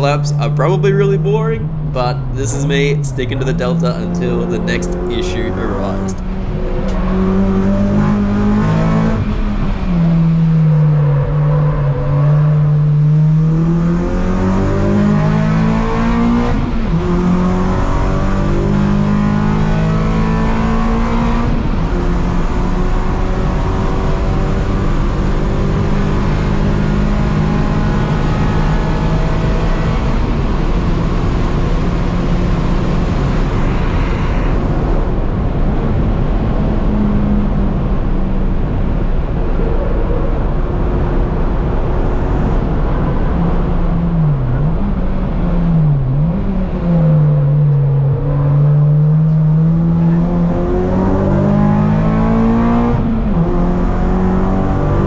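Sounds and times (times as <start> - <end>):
race car engine from inside cabin: 0.0 - 55.0.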